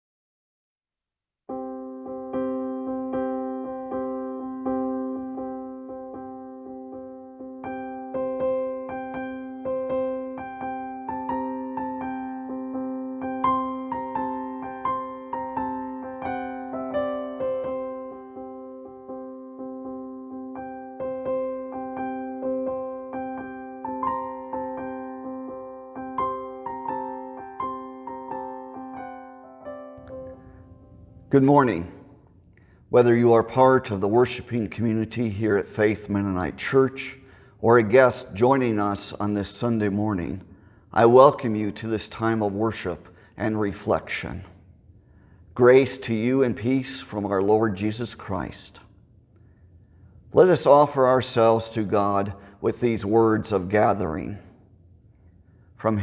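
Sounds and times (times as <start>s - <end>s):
piano chords: 1.5s - 36.7s.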